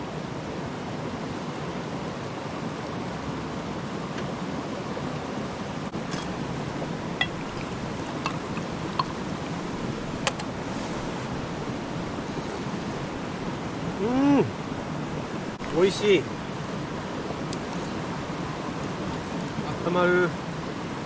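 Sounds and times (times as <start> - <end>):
campfire burning: 1.2 - 21.0
fire popping and clicking: 6.0 - 10.5.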